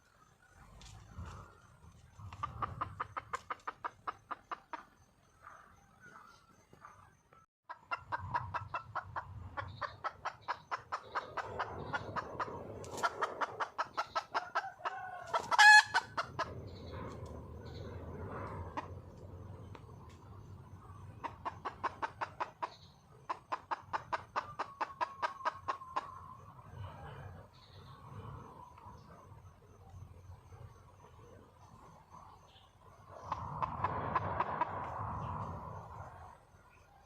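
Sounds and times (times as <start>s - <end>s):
hen clucking rapidly: 0.8s - 5.1s, 7.7s - 19.0s, 20.7s - 26.4s, 33.1s - 34.9s.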